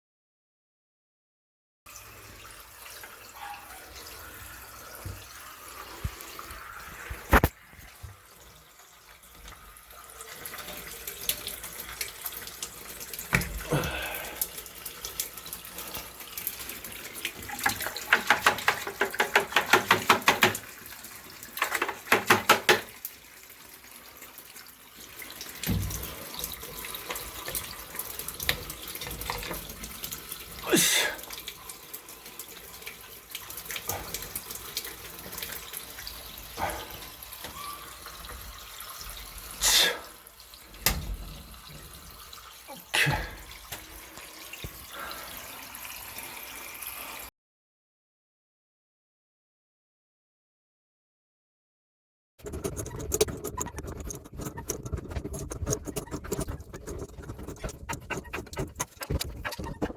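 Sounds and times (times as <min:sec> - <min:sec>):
water spitting from drain valve: 0:04.0 - 0:08.3, 0:09.0 - 0:23.2, 0:25.0 - 0:47.3, 0:52.4 - 0:59.9.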